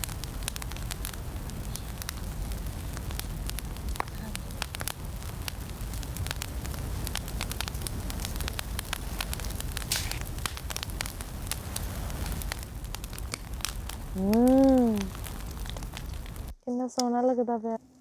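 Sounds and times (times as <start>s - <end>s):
low wind rumble: 0.0s - 16.6s
fire crackling and popping: 0.0s - 17.1s
voice-like sound: 14.2s - 15.2s.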